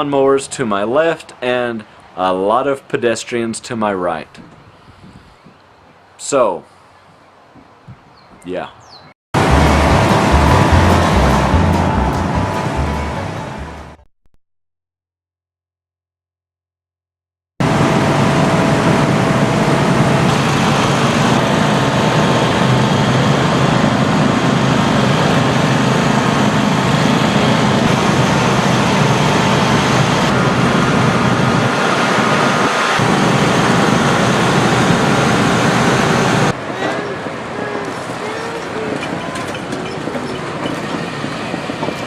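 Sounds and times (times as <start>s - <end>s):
many small engines rumbling: 9.4s - 14.0s, 17.6s - 42.0s.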